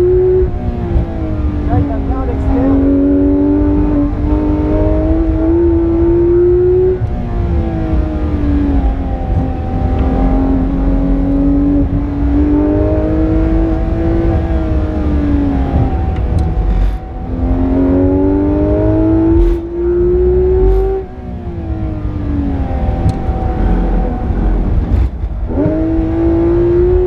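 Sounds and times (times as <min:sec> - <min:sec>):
car engine pulling hard: 0:00.0 - 0:27.0
road and tyre rumble: 0:00.0 - 0:27.0.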